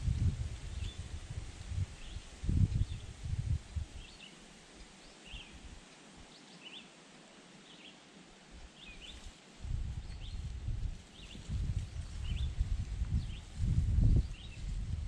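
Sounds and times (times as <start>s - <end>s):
wind rumbling on microphone: 0.0s - 4.3s, 8.6s - 15.0s.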